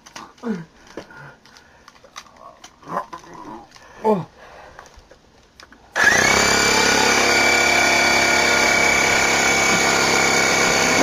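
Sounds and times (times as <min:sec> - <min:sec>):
electric air pump motor whining: 0:06.0 - 0:11.0.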